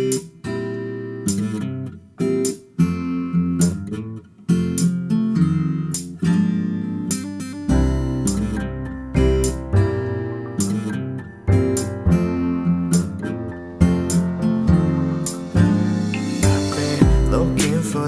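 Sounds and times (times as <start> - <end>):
strummed acoustic guitar: 0.0 - 18.0
bass line: 13.8 - 18.0.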